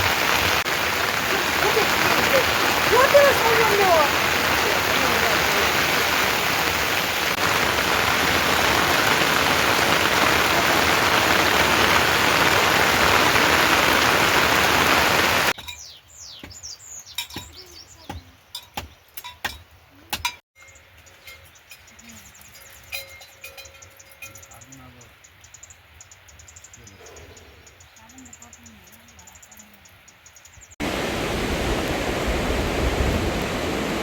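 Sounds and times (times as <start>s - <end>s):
heavy rain hissing: 0.0s - 15.6s, 30.8s - 34.0s.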